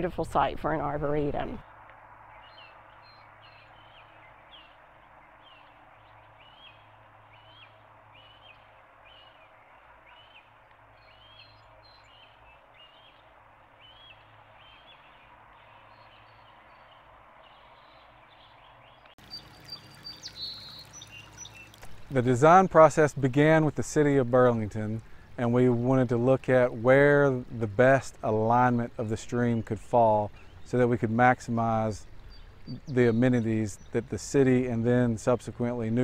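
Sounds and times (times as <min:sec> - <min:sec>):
faint outdoor ambience: 0:00.0 - 0:36.0
bird repeating high chirp: 0:19.3 - 0:21.7.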